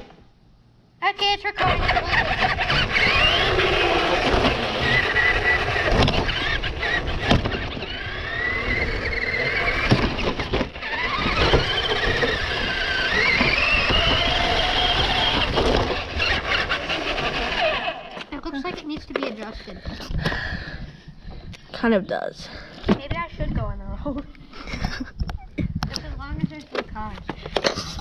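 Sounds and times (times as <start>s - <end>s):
rc car motor whining: 1.6s - 18.3s
wheels rumbling on ground: 1.6s - 20.5s.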